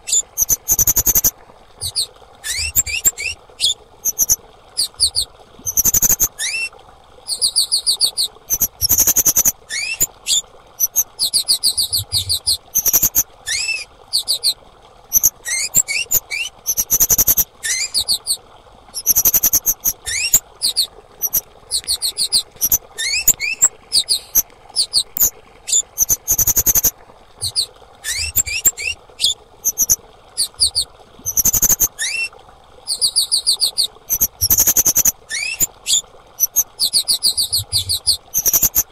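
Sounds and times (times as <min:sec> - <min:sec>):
faint steady hum: 0:00.0 - 0:38.9
bird trilling and chirping: 0:00.1 - 0:06.6, 0:11.8 - 0:18.3, 0:19.0 - 0:32.3, 0:34.1 - 0:36.6.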